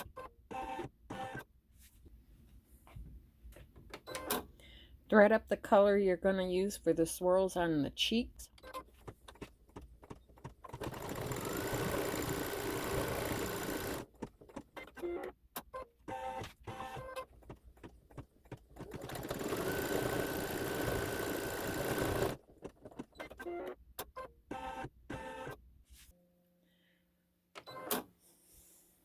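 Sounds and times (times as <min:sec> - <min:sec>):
embroidery machine whirring: 0:10.7 - 0:14.1.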